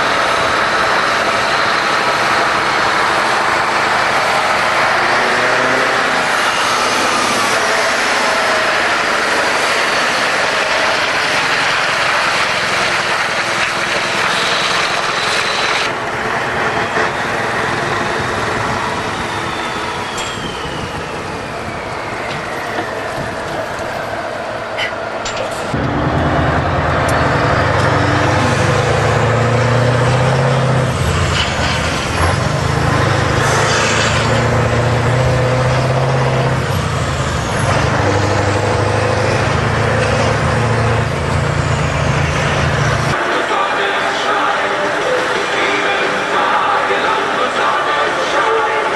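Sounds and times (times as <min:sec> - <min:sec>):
diesel truck engine running: 0:00.0 - 0:48.9
falling whistle: 0:19.1 - 0:23.4.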